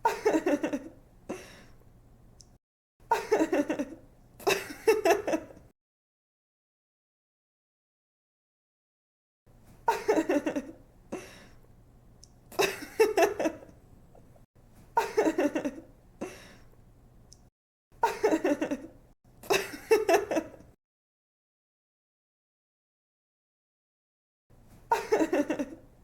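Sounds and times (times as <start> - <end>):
woman giggling: 0.0 - 1.0, 3.1 - 5.6, 9.9 - 10.8, 12.5 - 13.7, 15.0 - 15.9, 18.0 - 20.7, 24.9 - 25.8.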